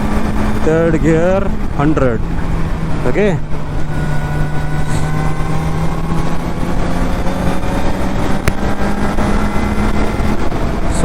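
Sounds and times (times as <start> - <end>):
motorcycle engine running: 0.0 - 11.0
wind and road noise: 0.0 - 11.0
sharp tick: 8.4 - 8.6.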